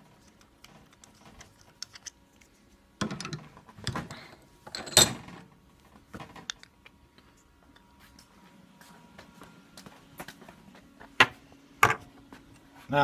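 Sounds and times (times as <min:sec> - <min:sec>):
metal parts clinking: 0:04.6 - 0:05.3.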